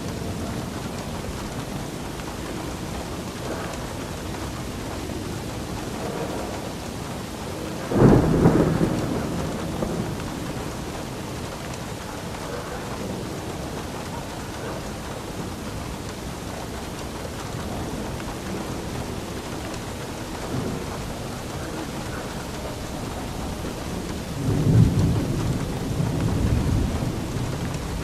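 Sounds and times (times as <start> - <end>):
steady rain: 0.0 - 28.0
thunder crack and rumble: 0.0 - 28.0.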